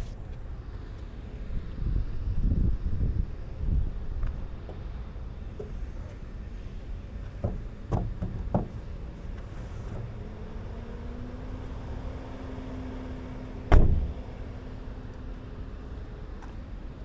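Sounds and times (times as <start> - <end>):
car cabin low rumble: 0.0 - 17.0
light knocks: 7.4 - 9.5
loud thump: 13.7 - 14.2.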